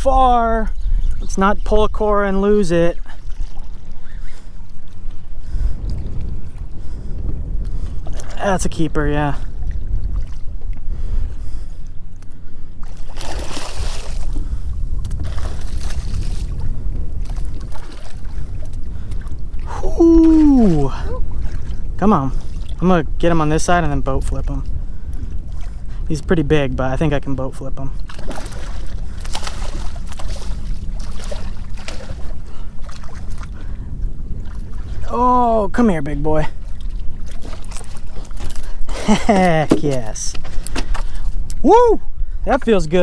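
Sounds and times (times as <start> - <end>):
wind buffeting microphone: 0.0 - 43.0
fish splashing in water: 28.1 - 33.6.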